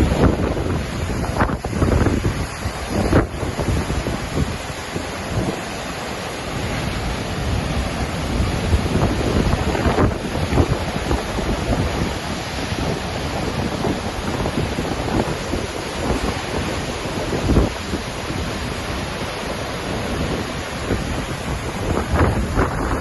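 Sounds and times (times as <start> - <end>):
waterfall roaring: 0.0 - 23.0
wind buffeting microphone: 0.0 - 23.0.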